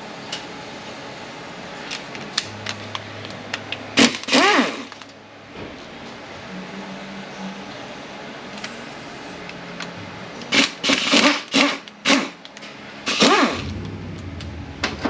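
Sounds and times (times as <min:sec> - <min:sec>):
cordless power tool spinning: 0:04.0 - 0:04.9, 0:13.1 - 0:13.8.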